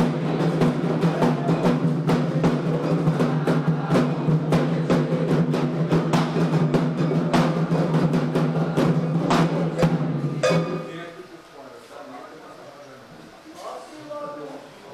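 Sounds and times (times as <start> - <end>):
hand drums fast rhythm: 0.0 - 10.9.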